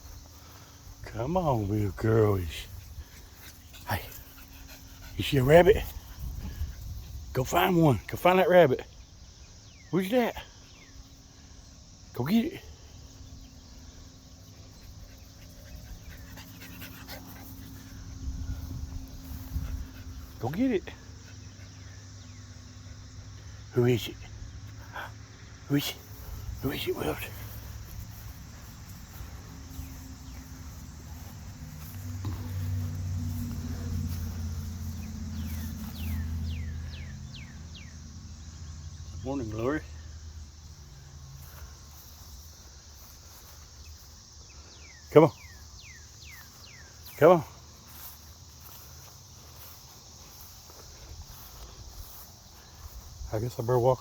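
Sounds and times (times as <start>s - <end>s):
dog panting: 2.7s - 6.2s, 14.6s - 20.4s.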